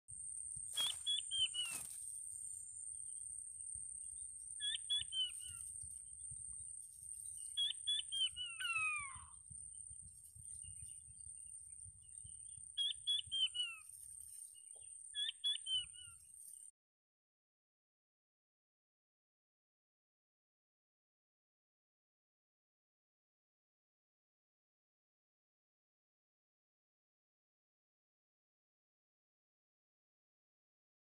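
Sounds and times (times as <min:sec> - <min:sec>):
bird calling falling notes: 0:00.8 - 0:02.0.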